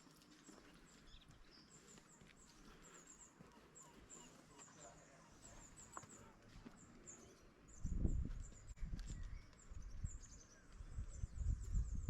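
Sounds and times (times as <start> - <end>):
small birds chirping: 0.2 - 12.0.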